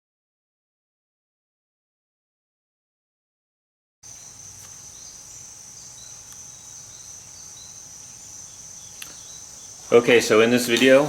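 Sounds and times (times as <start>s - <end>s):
high-pitched insect trill: 4.0s - 11.0s.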